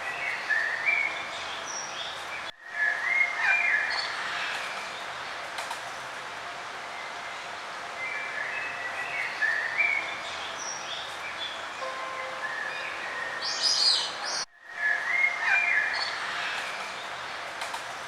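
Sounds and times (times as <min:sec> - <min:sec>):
birds singing and chirping: 0:08.0 - 0:16.8.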